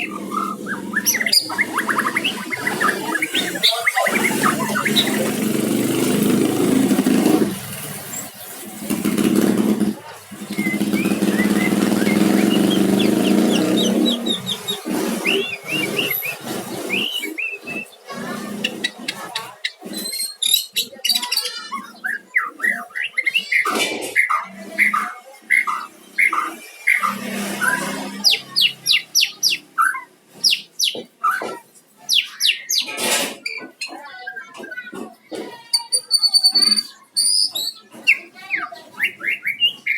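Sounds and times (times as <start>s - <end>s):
harsh bird call: 0.0s - 6.2s, 10.4s - 19.0s, 19.7s - 31.4s
motor engine running: 0.0s - 19.0s
bird singing whistled notes: 10.6s - 17.9s.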